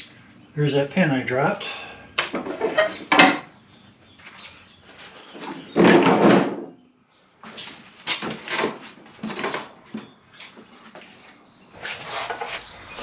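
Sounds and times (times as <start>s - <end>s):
tools knocking and rattling: 2.2s - 3.5s.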